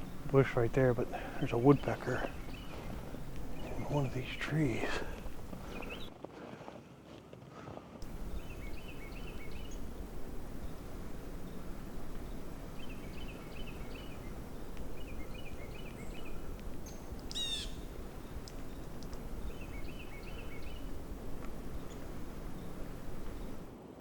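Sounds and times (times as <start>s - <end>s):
low outdoor rumble: 0.0s - 6.1s, 8.0s - 24.0s
songbirds chattering: 0.0s - 6.2s, 8.0s - 23.7s.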